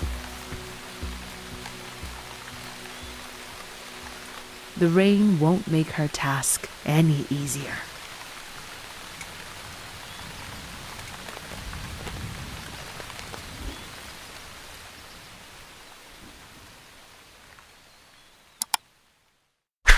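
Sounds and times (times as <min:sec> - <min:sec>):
steady rain falling: 0:00.0 - 0:19.6
sharp clicks: 0:18.6 - 0:18.8.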